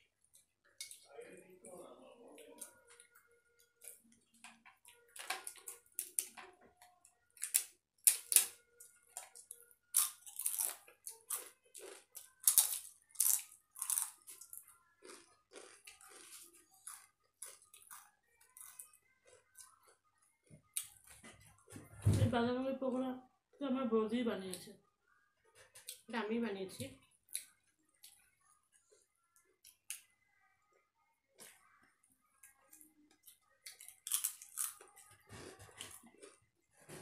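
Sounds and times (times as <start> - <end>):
crisp food crunching: 9.2 - 20.0, 32.6 - 36.4.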